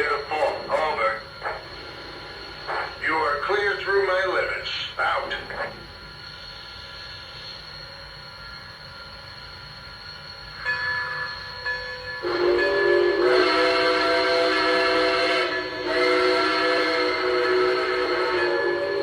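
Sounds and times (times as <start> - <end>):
steady hiss: 0.0 - 19.0
steam whistle from small speaker: 12.1 - 19.0.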